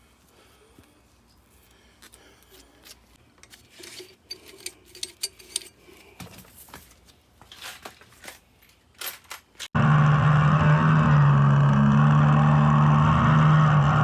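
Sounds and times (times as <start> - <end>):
metal parts clicking and clinking: 3.4 - 9.7.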